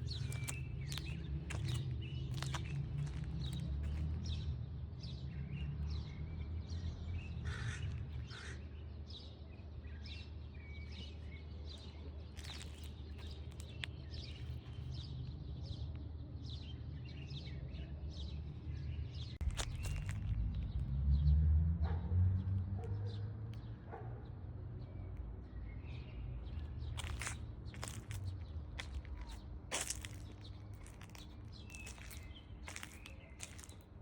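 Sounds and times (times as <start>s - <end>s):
birds chirping: 0.0s - 4.4s, 25.6s - 34.0s
steady low rumble: 19.4s - 21.0s.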